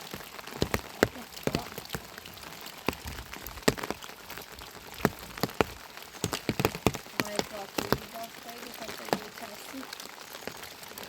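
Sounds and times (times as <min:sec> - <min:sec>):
sharp ticks and knocks: 0:00.0 - 0:08.3
steady rain falling: 0:00.0 - 0:11.0.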